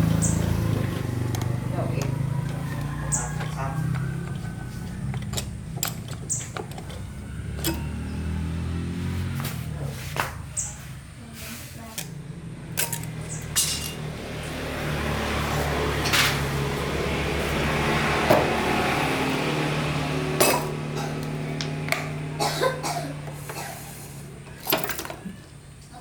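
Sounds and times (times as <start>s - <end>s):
low mechanical hum: 0.0s - 26.0s
metal tools clinking and knocking: 1.0s - 8.4s, 12.8s - 14.1s, 24.5s - 25.4s.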